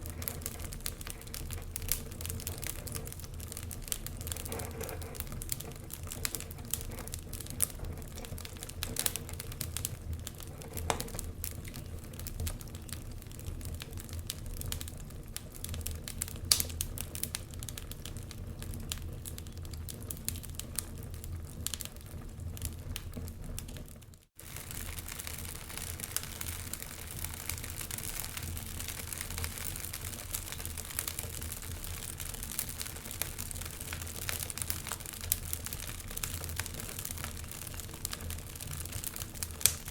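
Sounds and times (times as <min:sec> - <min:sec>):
fire crackling and popping: 0:00.0 - 0:39.9
fire hissing: 0:24.4 - 0:39.9.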